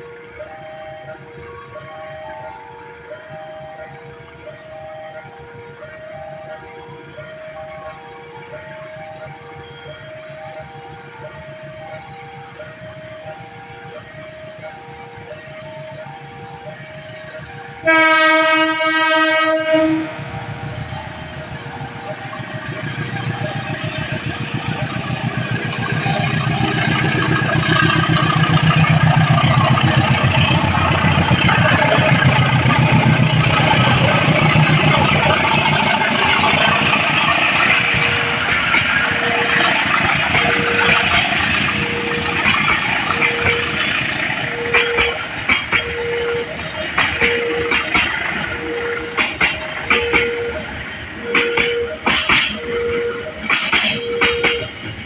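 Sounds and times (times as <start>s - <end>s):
crossing warning bell ringing: 0.0s - 55.0s
train rumble and wheel clatter: 0.0s - 55.0s
train horn blast: 17.8s - 20.4s, 26.0s - 54.8s.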